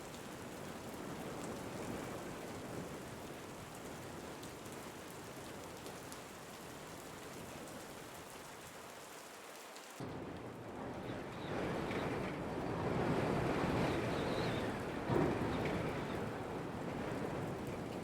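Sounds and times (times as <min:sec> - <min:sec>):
steady rain falling: 0:00.0 - 0:18.0
wind: 0:00.0 - 0:18.0
thunder rumbling: 0:10.6 - 0:18.0.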